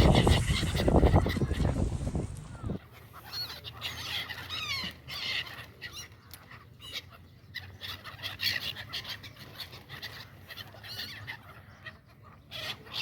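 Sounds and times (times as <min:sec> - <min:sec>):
birds chirping and whistling: 0:00.0 - 0:02.8
loud noisy rush: 0:00.0 - 0:02.8.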